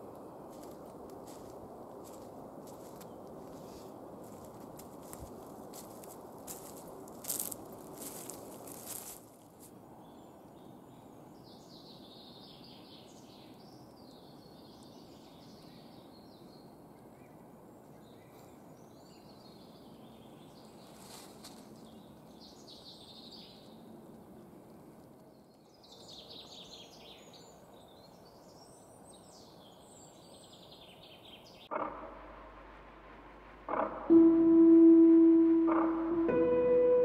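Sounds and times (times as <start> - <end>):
songbirds chirping: 0.0 - 37.0
steady background hush: 31.7 - 37.0.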